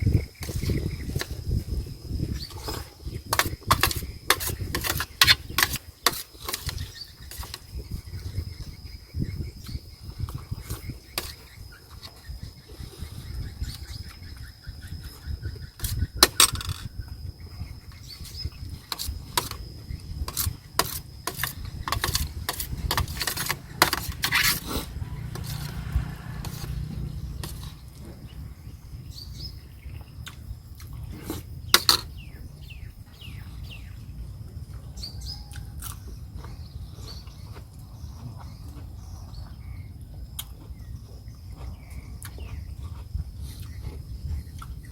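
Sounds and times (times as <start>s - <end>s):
chewing: 35.4s - 44.9s.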